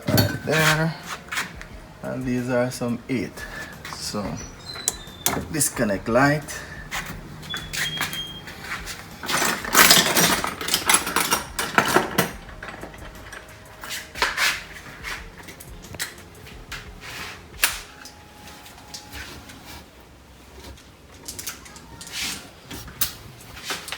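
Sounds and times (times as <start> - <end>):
plastic clicks and rattles: 9.2 - 14.4.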